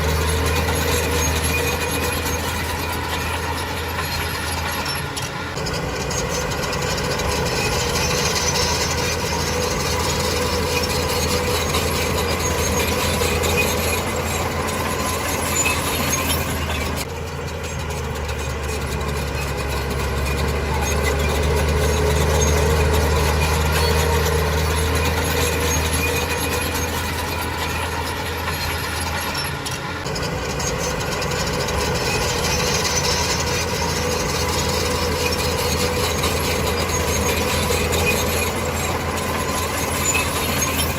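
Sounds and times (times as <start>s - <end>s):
diesel engine low drone: 0.0s - 40.9s.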